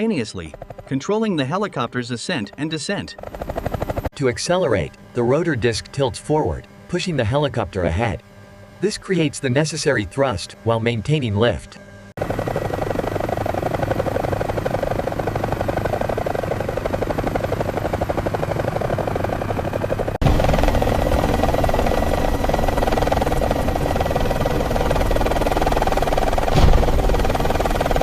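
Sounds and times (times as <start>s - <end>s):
helicopter rotor blades chopping: 0.0s - 28.0s.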